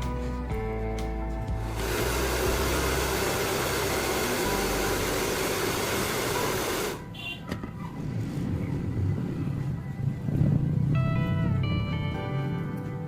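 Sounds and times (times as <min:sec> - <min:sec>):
hair dryer blowing: 0:01.6 - 0:07.1.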